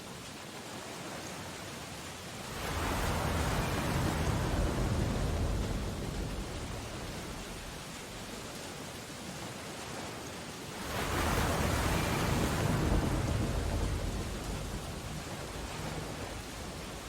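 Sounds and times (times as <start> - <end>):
rain hissing on window glass: 10.7 - 17.0.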